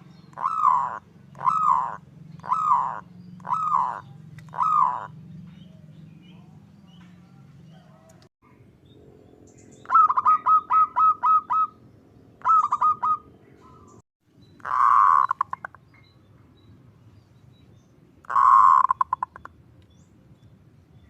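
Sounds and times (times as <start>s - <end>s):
dove calling: 0.0s - 8.3s, 9.5s - 14.0s, 14.6s - 16.0s, 18.2s - 19.6s.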